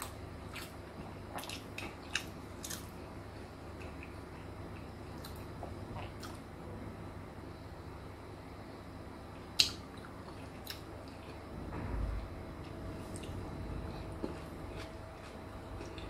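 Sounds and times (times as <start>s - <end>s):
person chewing with wet clicks: 0.0s - 3.0s, 3.7s - 6.5s, 9.6s - 11.4s, 14.2s - 16.0s
low rumble: 11.4s - 16.0s.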